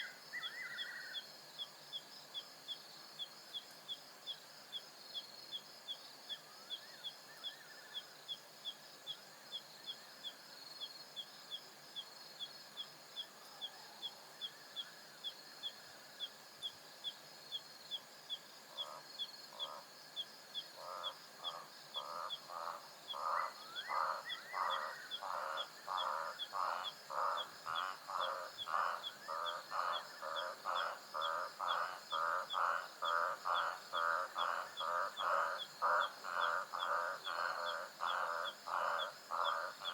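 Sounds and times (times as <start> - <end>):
insect hum: 0.0 - 39.9
low repeated animal call: 20.6 - 39.9.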